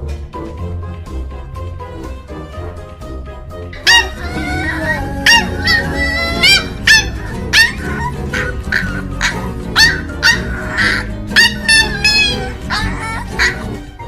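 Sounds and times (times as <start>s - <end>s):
background music: 0.0s - 14.0s
puppy yapping: 3.8s - 13.8s.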